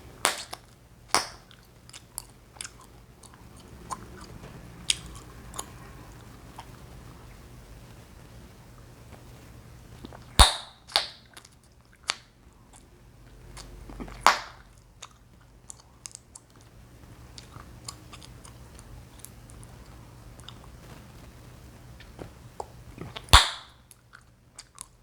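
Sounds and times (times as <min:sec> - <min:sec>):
chewing clicks and smacks: 0:00.2 - 0:05.8, 0:10.0 - 0:21.0, 0:22.0 - 0:25.0
chewing gum popping: 0:00.2 - 0:05.8, 0:10.0 - 0:16.7, 0:17.3 - 0:21.0, 0:22.0 - 0:25.0.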